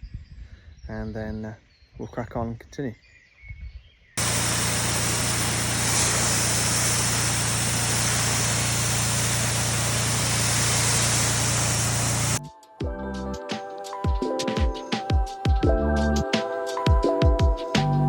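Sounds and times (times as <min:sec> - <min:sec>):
high-pressure water spray hiss: 0:04.2 - 0:12.4
pressure washer engine hum: 0:04.2 - 0:12.4.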